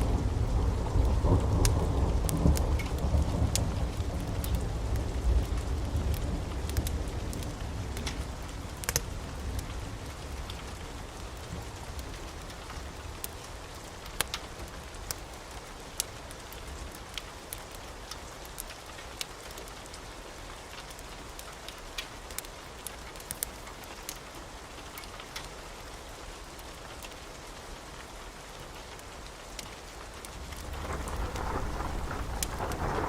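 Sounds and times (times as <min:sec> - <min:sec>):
wood fire crackling: 0:00.0 - 0:28.1, 0:28.7 - 0:33.0
low rumble: 0:30.6 - 0:33.0.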